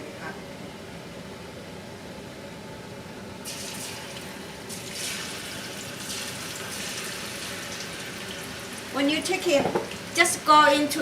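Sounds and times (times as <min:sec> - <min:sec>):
deep-frying oil sizzling: 0:03.4 - 0:11.0.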